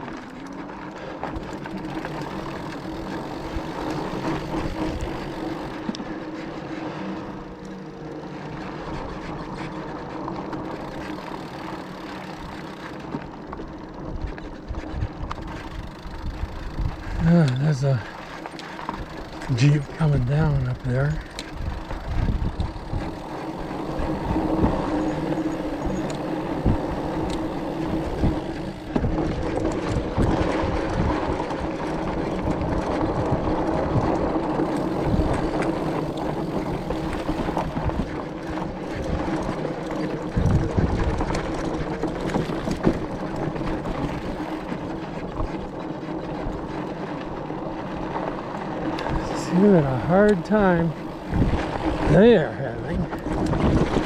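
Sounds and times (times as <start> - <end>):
electric bike motor humming: 0.0 - 54.0
wind buffeting microphone: 14.0 - 54.0
tyres crunching over gravel: 15.4 - 40.4.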